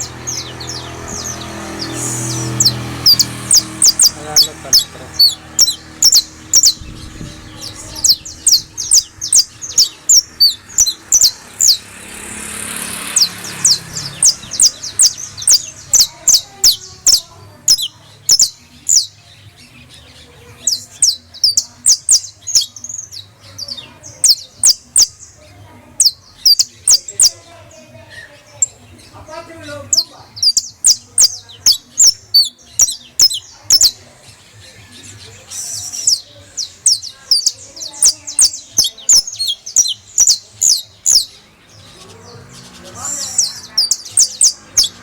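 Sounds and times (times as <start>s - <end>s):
canary singing: 0.0s - 45.0s.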